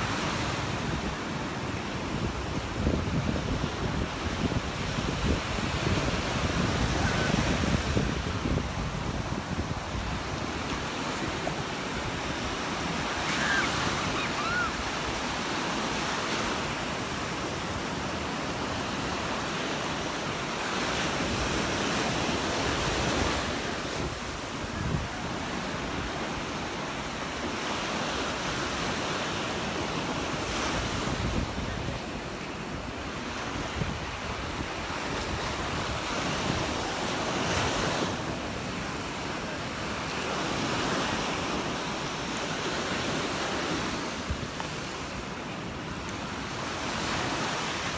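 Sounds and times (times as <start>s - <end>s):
wind rumbling on microphone: 0.0s - 15.4s, 21.2s - 26.4s, 30.4s - 39.0s
surf breaking on beach: 0.0s - 47.9s.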